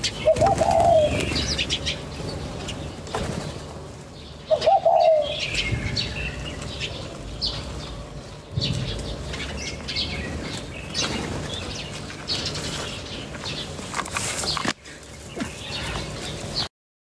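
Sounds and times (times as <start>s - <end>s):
lower falling bird call: 0.0s - 2.1s
small birds chirping: 0.0s - 16.7s
wings fluttering: 0.0s - 16.7s.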